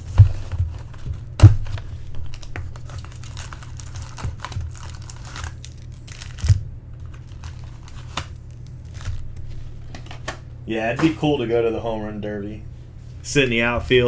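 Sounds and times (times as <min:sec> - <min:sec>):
cards being handled and flipped: 0:00.0 - 0:10.4
steady low hum: 0:00.0 - 0:14.0.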